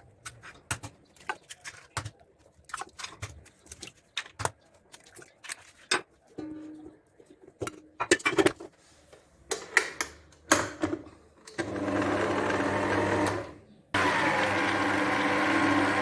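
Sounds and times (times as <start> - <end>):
electric hand mixer whirring: 11.6 - 16.0.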